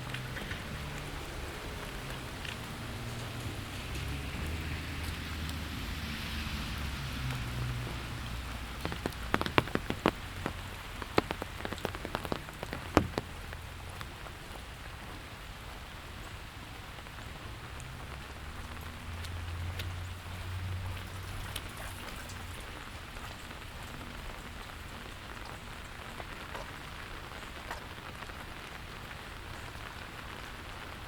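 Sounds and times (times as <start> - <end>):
steady rain: 0.0 - 31.0
sharp drip taps: 6.8 - 15.2, 17.7 - 24.6.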